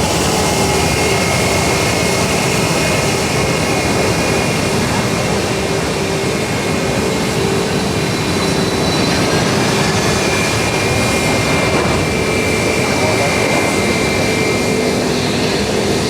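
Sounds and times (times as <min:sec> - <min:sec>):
jet engines roaring: 0:00.0 - 0:16.0
turbine whine: 0:00.0 - 0:16.0.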